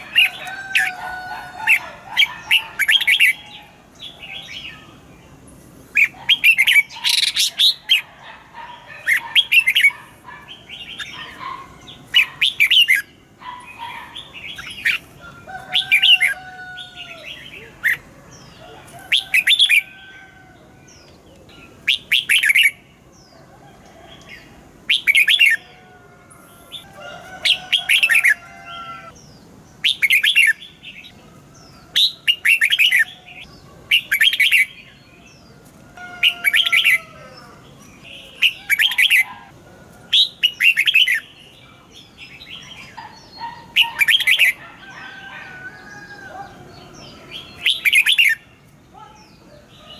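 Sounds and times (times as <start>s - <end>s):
bird singing chirpy phrases: 8.6s - 15.1s, 20.6s - 23.4s, 36.3s - 39.4s, 45.8s - 49.9s.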